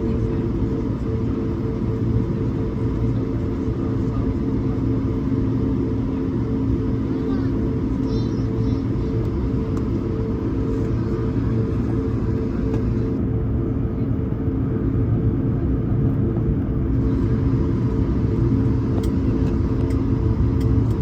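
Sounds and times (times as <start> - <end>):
jet engines rumbling in cabin: 0.0 - 21.0.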